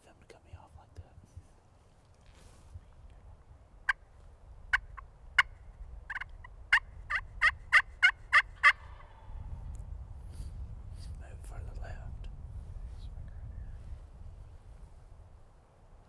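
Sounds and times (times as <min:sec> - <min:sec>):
turkey yelping: 0:06.1 - 0:09.2.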